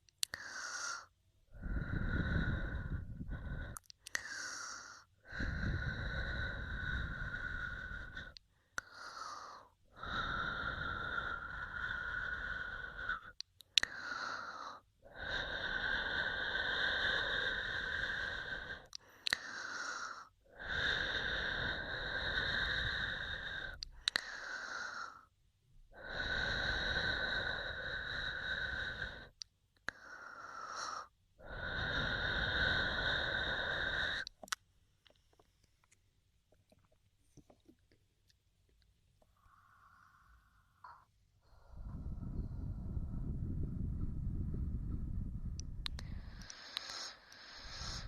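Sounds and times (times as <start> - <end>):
mouth clicks: 3.3 - 4.8, 12.9 - 14.6, 18.6 - 20.1, 21.5 - 25.1, 28.7 - 36.0, 45.6 - 48.0
air blowing into microphone: 41.6 - 48.0.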